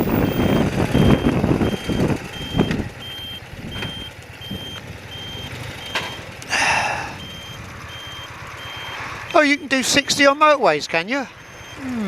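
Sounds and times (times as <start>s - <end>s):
wind noise: 0.0s - 4.7s
high electronic beep: 0.0s - 6.2s, 7.2s - 10.4s, 11.4s - 12.0s
motorcycle engine: 0.0s - 12.0s.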